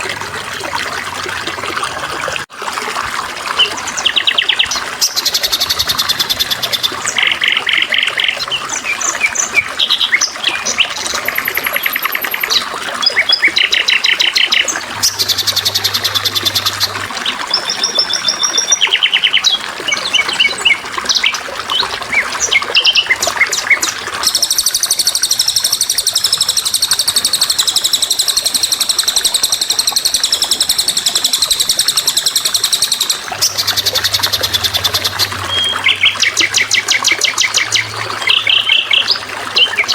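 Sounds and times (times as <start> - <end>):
trickling water: 0.0 - 39.9
songbirds chirping and trilling: 3.6 - 39.9.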